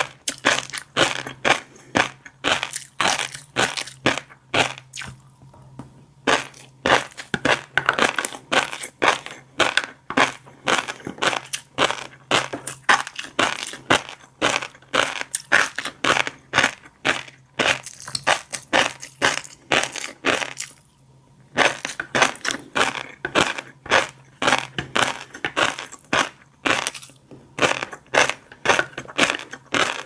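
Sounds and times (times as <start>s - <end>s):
chewing fish roe crunching: 0.0s - 20.8s, 21.6s - 30.0s.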